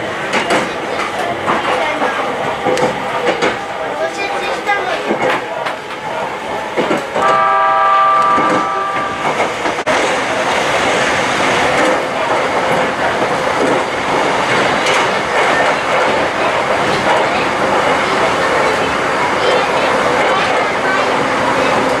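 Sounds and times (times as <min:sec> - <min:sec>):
train wheels rumbling on rails: 0:00.0 - 0:22.0
steady pitched tone: 0:07.2 - 0:09.5.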